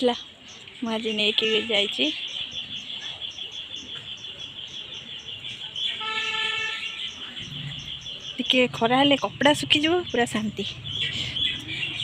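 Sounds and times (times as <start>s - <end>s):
horn steady tone: 1.2s - 2.1s, 6.0s - 7.2s.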